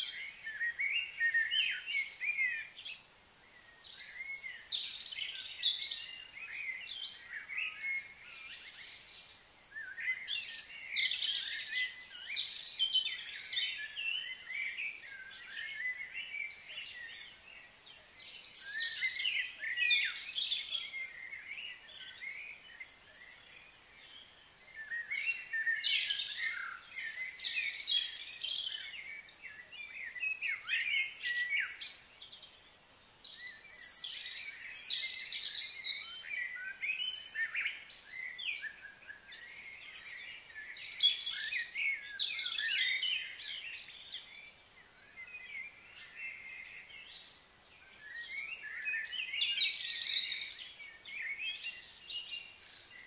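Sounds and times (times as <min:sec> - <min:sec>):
birds chirping and singing: 0:00.0 - 0:53.0.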